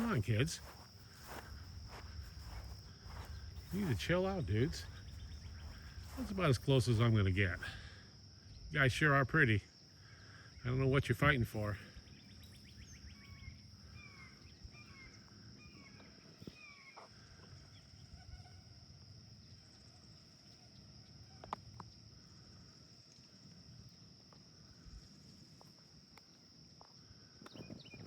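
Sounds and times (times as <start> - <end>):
high insect drone: 0.0 - 28.0
faint bird calls: 12.0 - 18.2.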